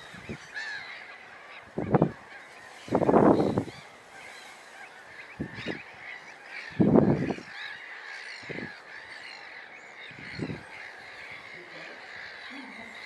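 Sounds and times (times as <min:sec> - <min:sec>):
flock chattering calls: 0:00.0 - 0:13.0
harsh low waterbird calls: 0:00.0 - 0:13.0.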